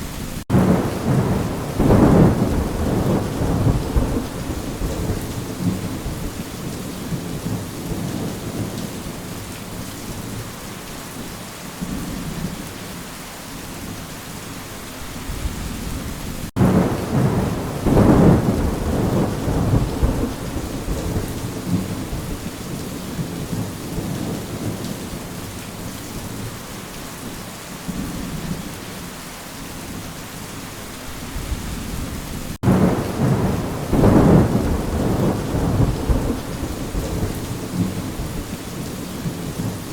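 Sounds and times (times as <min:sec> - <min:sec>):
rain falling: 0:00.0 - 0:39.9
thunder rumbling: 0:00.2 - 0:09.2, 0:15.3 - 0:25.0, 0:31.3 - 0:39.9.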